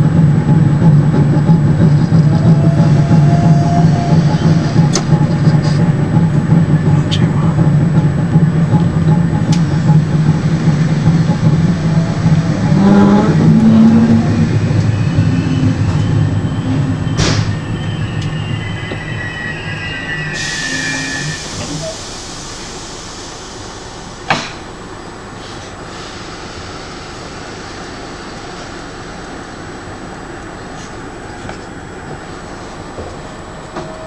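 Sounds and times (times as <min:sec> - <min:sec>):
train wheels rumbling on rails: 0:00.0 - 0:34.0
high squeal: 0:02.0 - 0:05.9, 0:10.6 - 0:22.8.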